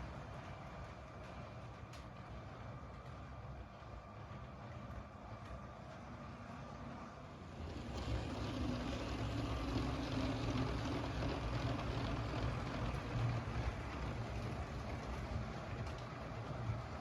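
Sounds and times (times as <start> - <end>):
wheels rattling over plastic rails: 7.6 - 17.0.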